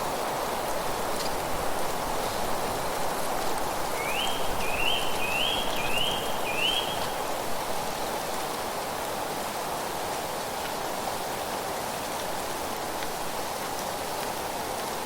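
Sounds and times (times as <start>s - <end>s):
wind through leaves: 0.0s - 15.0s
songbird calling rising notes: 4.0s - 7.2s.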